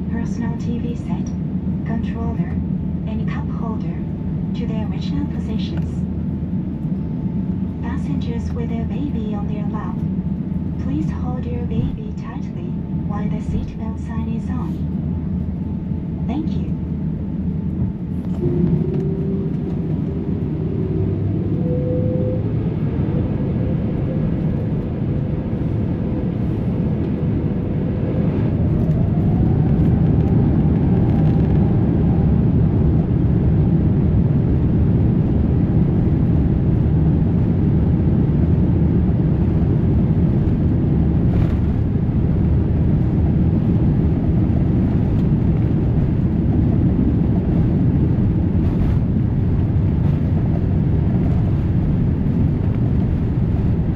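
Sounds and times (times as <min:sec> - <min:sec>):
jet engines spooling up: 0:16.8 - 0:32.4.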